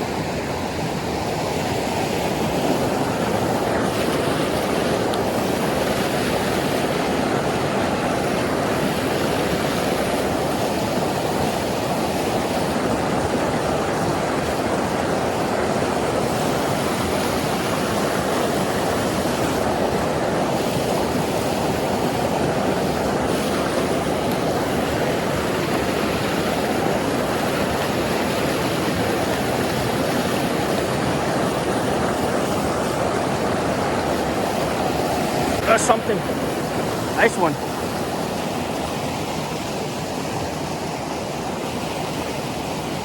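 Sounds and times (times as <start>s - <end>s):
creek water rushing: 0.0s - 43.0s.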